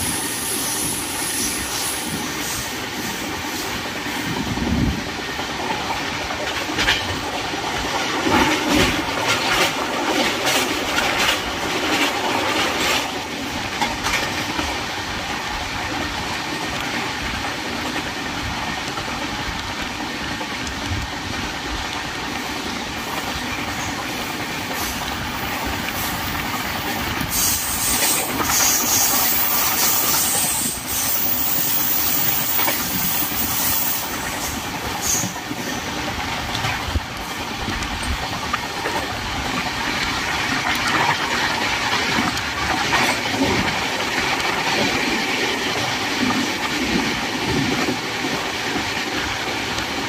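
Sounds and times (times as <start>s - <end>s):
train rumble: 0.0s - 50.0s
train wheels knocking: 22.6s - 48.9s.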